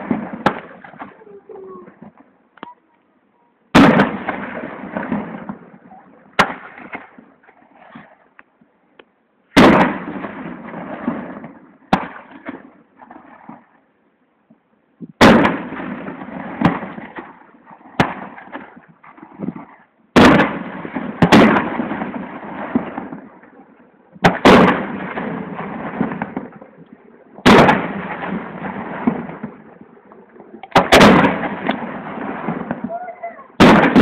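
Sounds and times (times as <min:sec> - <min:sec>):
firework shells bursting: 0:09.5 - 0:13.7, 0:15.1 - 0:23.6, 0:24.2 - 0:33.0, 0:33.6 - 0:34.0
rolling echo: 0:15.2 - 0:34.0.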